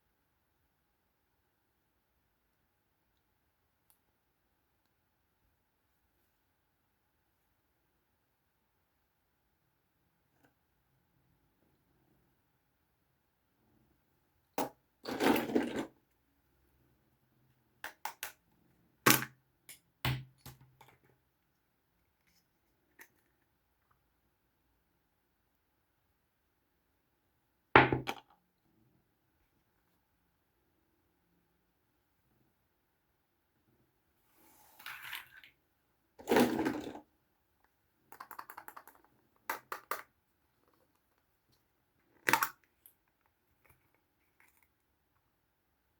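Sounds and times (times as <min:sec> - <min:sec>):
plastic toys clicking and tapping: 0:38.1 - 0:40.1.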